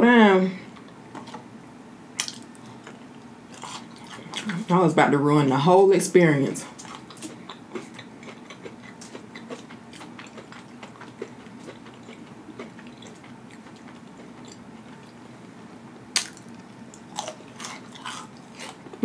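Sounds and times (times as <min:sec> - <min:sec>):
person chewing food: 0:02.2 - 0:04.7, 0:06.7 - 0:15.3, 0:16.2 - 0:19.0.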